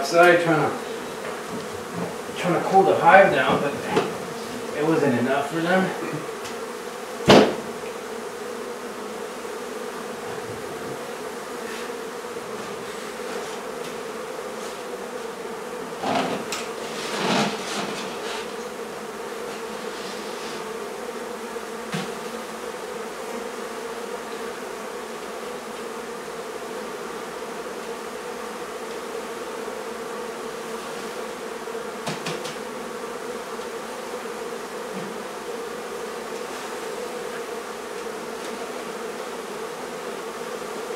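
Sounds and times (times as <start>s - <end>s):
bees buzzing: 0.0s - 40.9s
sharp knock: 7.2s - 7.7s.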